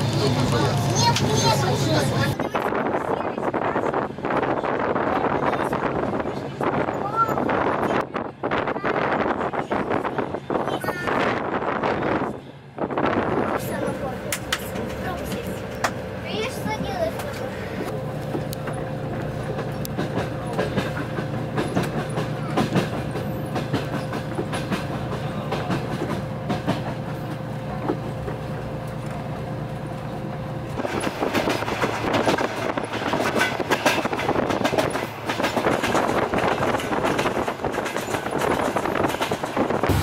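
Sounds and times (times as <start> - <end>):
train carriage low hum: 0.0 - 40.0
wheels clicking over track: 13.6 - 40.0.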